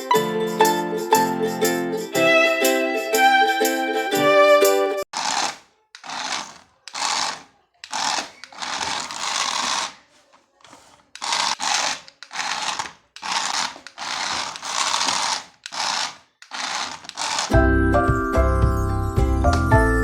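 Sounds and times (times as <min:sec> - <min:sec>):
toy electric motor whirring: 0:05.1 - 0:17.6.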